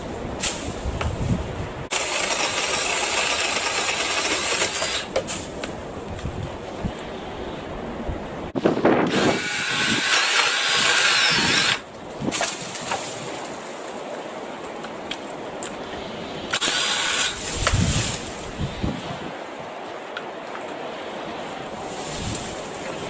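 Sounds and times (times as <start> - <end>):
cordless saw cutting branch: 1.9 - 5.5, 9.0 - 13.1, 16.5 - 18.3.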